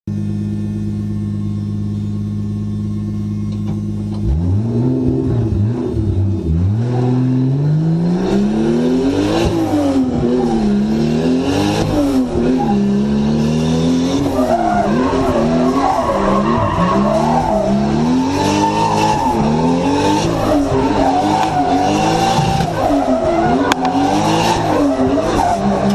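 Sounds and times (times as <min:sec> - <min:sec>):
car engine revving: 0:00.1 - 0:25.9
tyre squeal: 0:14.0 - 0:25.9.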